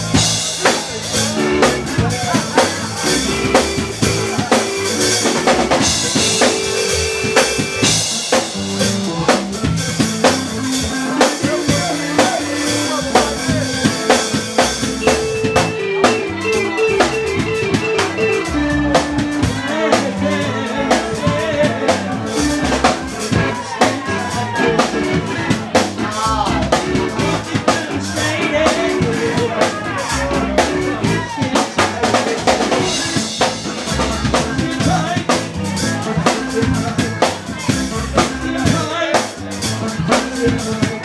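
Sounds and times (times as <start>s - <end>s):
bass line: 0.0s - 41.0s
drum kit beat: 0.0s - 41.0s
soul band playing: 0.0s - 41.0s.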